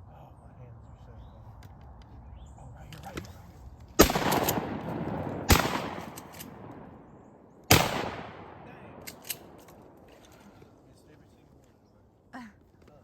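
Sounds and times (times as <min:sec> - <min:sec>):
shotgun shots echoing: 0:04.0 - 0:10.5.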